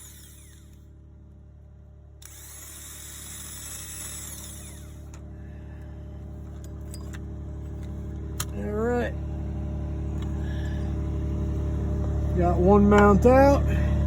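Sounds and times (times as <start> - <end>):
power tool whirring: 0.0 - 0.9, 2.2 - 5.2.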